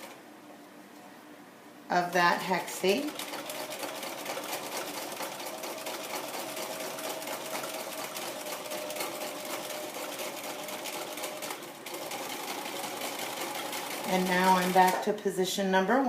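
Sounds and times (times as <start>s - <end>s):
sewing machine needle chatter: 2.8s - 15.0s.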